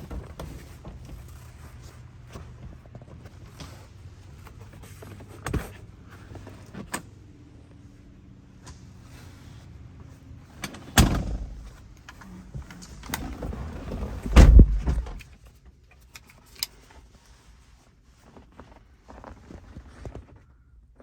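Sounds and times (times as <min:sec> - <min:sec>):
car door clunk: 0:10.9 - 0:11.8, 0:14.0 - 0:15.2.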